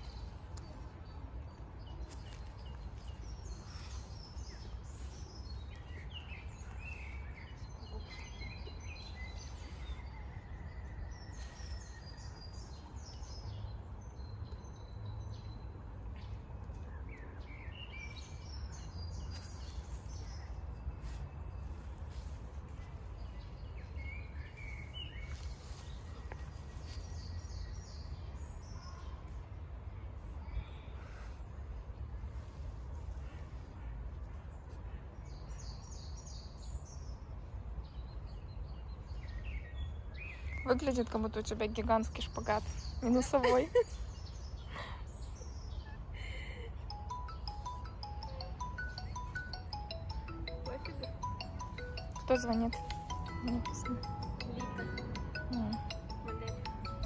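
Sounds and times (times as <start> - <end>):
birds chirping and trilling: 37.9 - 57.0.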